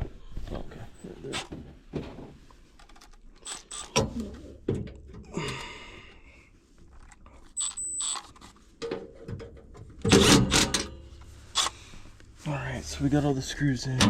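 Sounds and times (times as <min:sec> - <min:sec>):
tools clicking and knocking: 0:07.0 - 0:11.7
loud metal clatter: 0:10.0 - 0:11.1.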